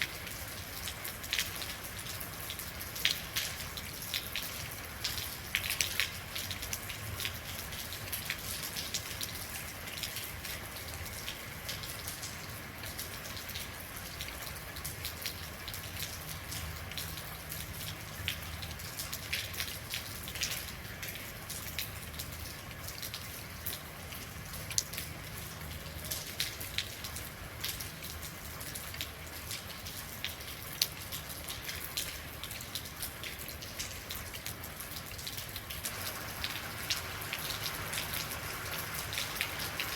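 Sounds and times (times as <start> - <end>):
rain drops on hard surface: 0.0 - 39.9.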